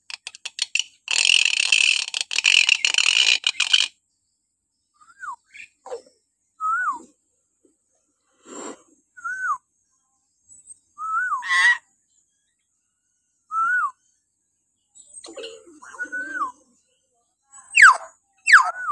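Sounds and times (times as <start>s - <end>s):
harsh rasping bird calls: 0.0s - 3.9s, 17.7s - 18.9s.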